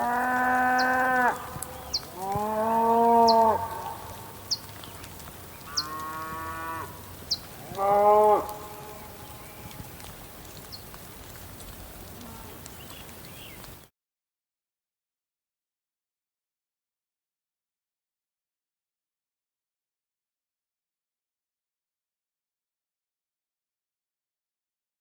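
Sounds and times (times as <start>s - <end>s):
cow mooing: 0.0s - 4.2s, 5.7s - 9.6s, 12.2s - 12.6s.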